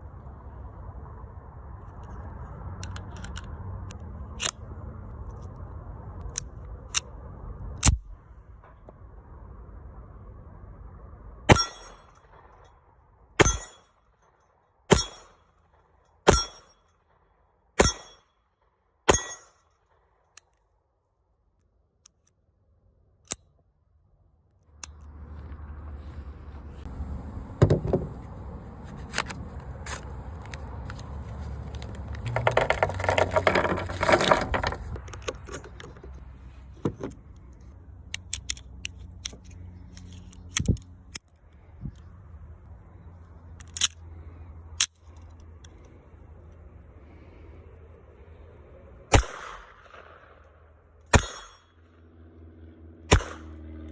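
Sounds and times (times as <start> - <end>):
low hum: 0.0 - 53.9
handgun shots: 17.8 - 18.2, 51.1 - 51.6, 53.1 - 53.5
mechanical handling noise: 28.9 - 42.1, 43.6 - 44.0
metallic clinking and rattling: 31.7 - 36.2.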